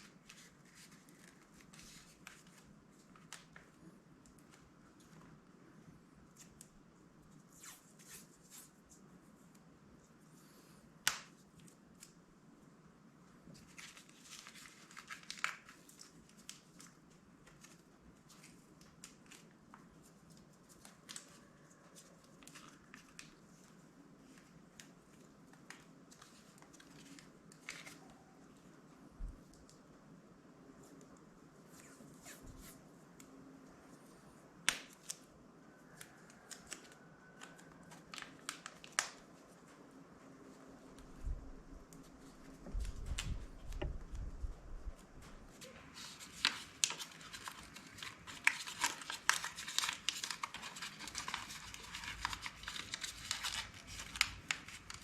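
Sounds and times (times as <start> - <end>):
tape crinkling and clicks: 0.0 - 5.5, 13.5 - 30.0, 34.6 - 40.0, 41.9 - 55.0
plastic covering crinkling: 45.0 - 55.0.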